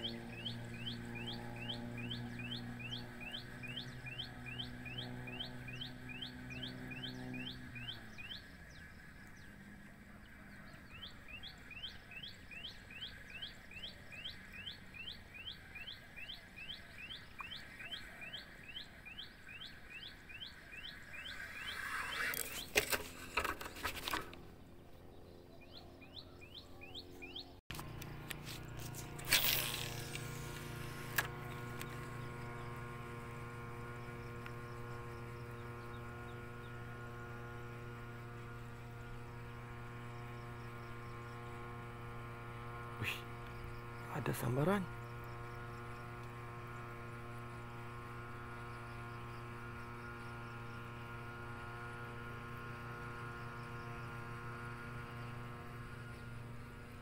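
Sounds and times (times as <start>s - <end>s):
faint outdoor ambience: 0.0s - 57.0s
steady low hum: 0.0s - 57.0s
bird falling chirps: 20.9s - 23.4s.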